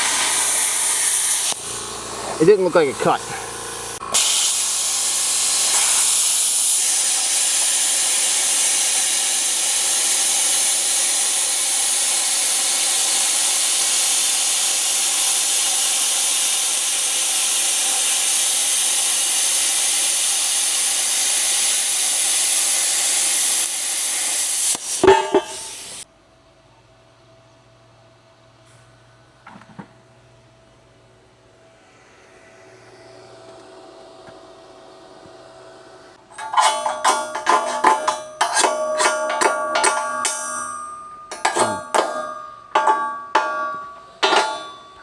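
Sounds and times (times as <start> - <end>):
plasma cutter hiss: 0.0 - 26.0.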